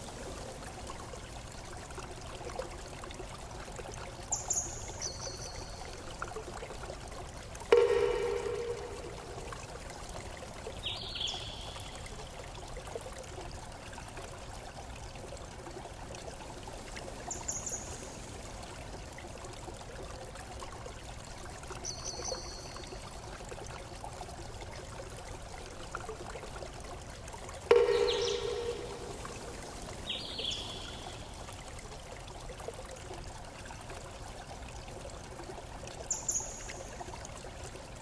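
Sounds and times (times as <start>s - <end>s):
stream trickling and splashing: 0.0s - 38.0s
high-pitched chirps: 27.7s - 29.4s.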